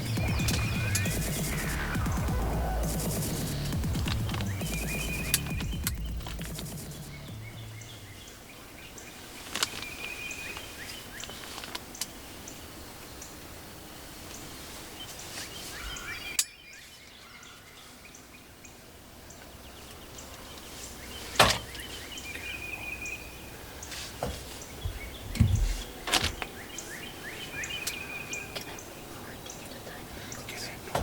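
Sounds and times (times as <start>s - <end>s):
songbirds chirping and trilling: 0.0s - 31.0s
short low thump: 24.8s - 25.9s.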